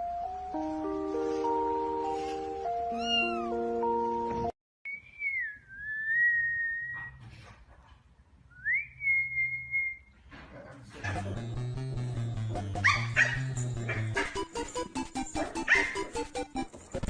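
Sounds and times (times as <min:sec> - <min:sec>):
gentle music: 0:00.0 - 0:04.5, 0:11.2 - 0:17.0
high-pitched animal cries: 0:02.9 - 0:03.6.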